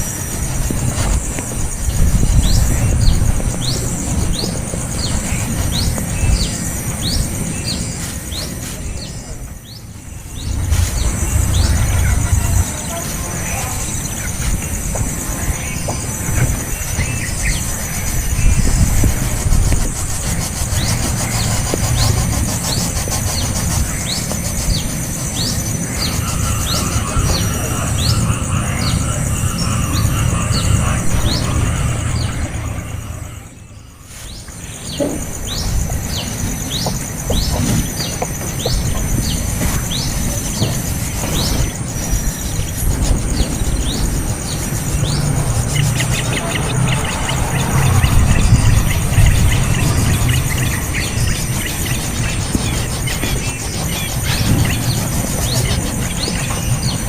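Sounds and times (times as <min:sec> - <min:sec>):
steady high hiss: 0:00.0 - 0:57.0
small bird chirping: 0:00.1 - 0:57.0
low rumble: 0:09.2 - 0:16.9, 0:25.8 - 0:34.0, 0:42.4 - 0:53.4.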